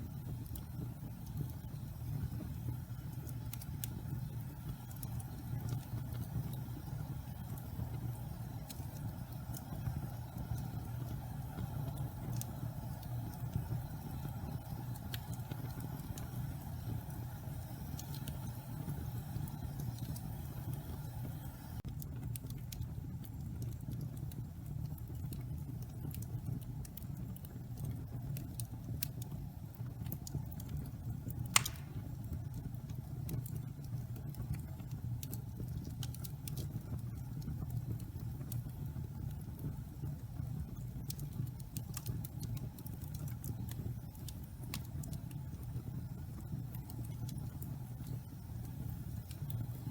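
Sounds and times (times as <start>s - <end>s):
fire rumbling: 0.0s - 49.9s
logs crackling: 31.4s - 32.2s
loud sharp pop of log: 31.6s - 32.0s.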